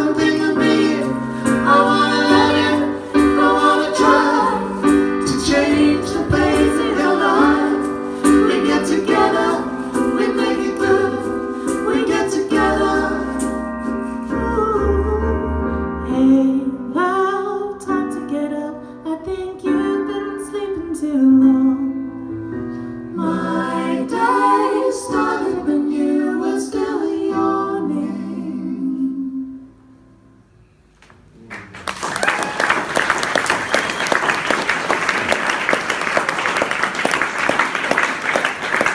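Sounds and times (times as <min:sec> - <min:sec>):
voices singing in harmony: 0:00.0 - 0:18.0, 0:23.1 - 0:29.7
keyboard accompaniment: 0:00.0 - 0:18.7.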